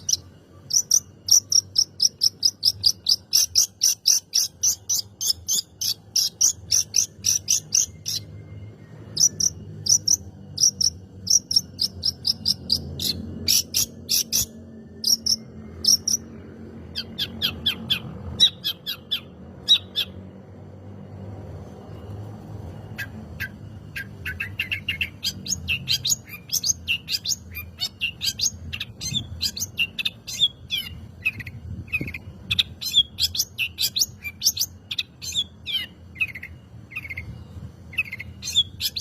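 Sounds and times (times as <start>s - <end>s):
bird singing harsh notes: 0.0s - 20.4s, 22.8s - 39.0s.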